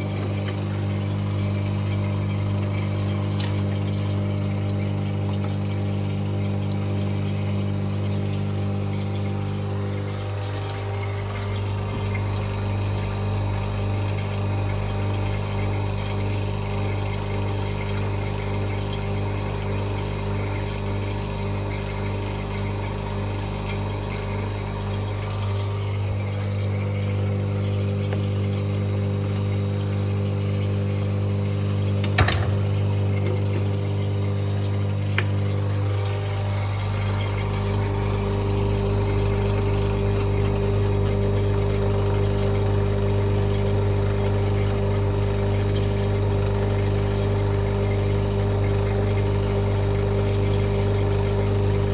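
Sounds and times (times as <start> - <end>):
electric machine hum: 0.0 - 51.9.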